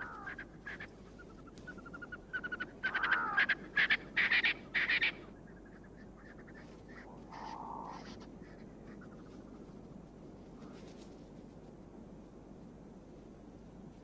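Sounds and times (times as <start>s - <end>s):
francolin calling: 0.0s - 9.3s.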